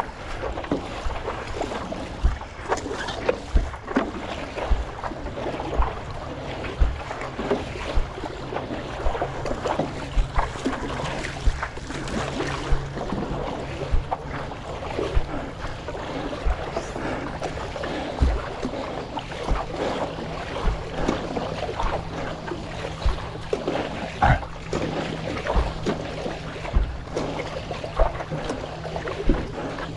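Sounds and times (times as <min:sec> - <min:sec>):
water splashing along board: 0:00.0 - 0:29.9
paddle stroke thump: 0:02.2 - 0:05.0, 0:06.8 - 0:07.1, 0:16.3 - 0:18.8, 0:20.5 - 0:21.2, 0:22.9 - 0:24.9, 0:25.5 - 0:28.2.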